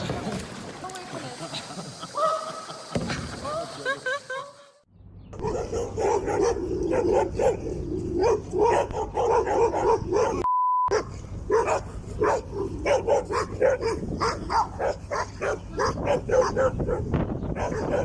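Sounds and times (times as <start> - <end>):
dog barking rapidly: 5.4 - 18.0
short steady beep: 10.4 - 10.9.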